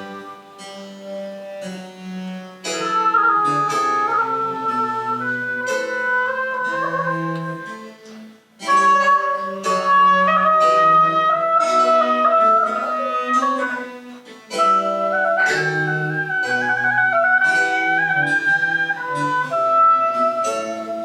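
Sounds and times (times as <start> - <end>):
flute melody: 0.0 - 1.4, 2.6 - 21.0
plucked string accompaniment: 0.0 - 21.0.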